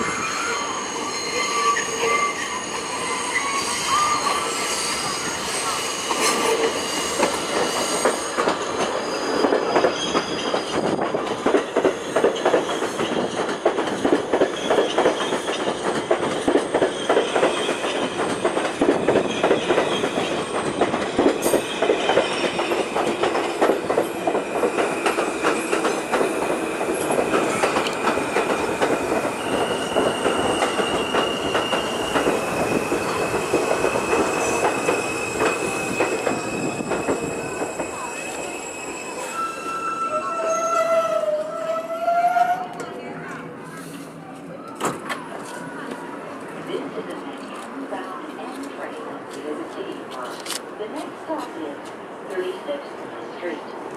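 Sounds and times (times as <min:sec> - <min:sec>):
train wheels squealing: 0:00.0 - 0:11.3, 0:16.7 - 0:18.0, 0:24.2 - 0:26.1, 0:26.9 - 0:42.7
train wheels clattering over rails: 0:06.1 - 0:38.4.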